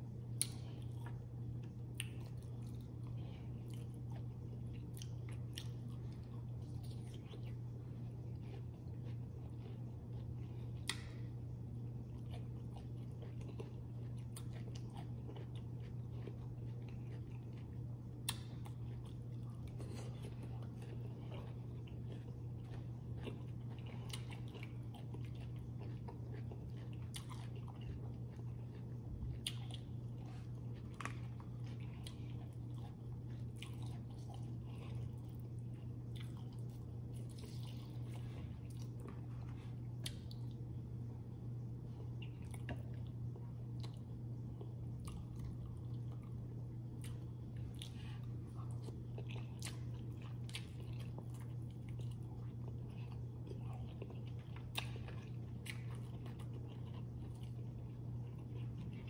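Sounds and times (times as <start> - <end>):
steady low hum: 0.0 - 59.0
chewing and biting food: 0.1 - 59.0.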